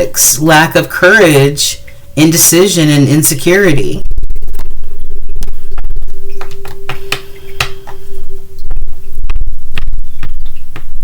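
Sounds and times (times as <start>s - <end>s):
loud steady low hum: 0.0s - 11.0s
faint held tone: 4.0s - 10.7s
cards clicking and tapping: 6.4s - 8.0s.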